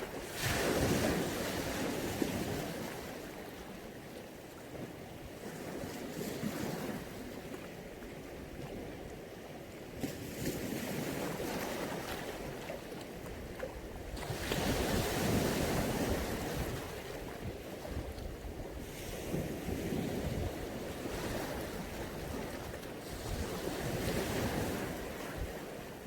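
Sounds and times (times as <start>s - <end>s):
sea waves breaking: 0.0s - 4.0s, 10.0s - 18.2s, 18.8s - 26.0s.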